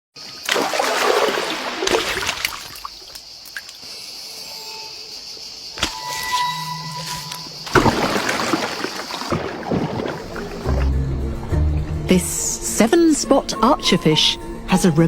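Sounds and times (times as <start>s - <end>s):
water splashing and trickling: 0.2s - 4.0s, 7.0s - 11.8s.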